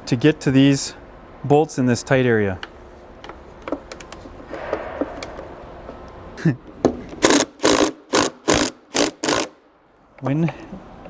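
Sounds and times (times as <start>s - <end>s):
socket ratchet clicking: 7.1s - 9.6s.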